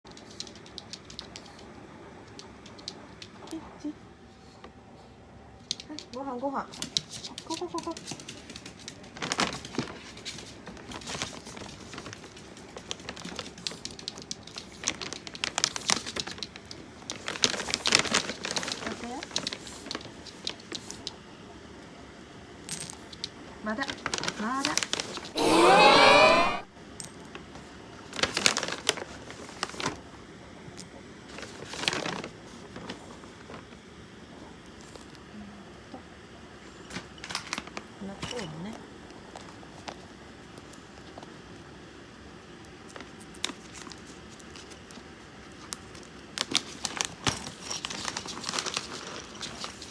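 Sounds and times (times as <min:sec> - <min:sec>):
dry kibble clicking: 0:00.1 - 0:03.6, 0:06.8 - 0:21.2
packaging crinkling: 0:46.4 - 0:49.9.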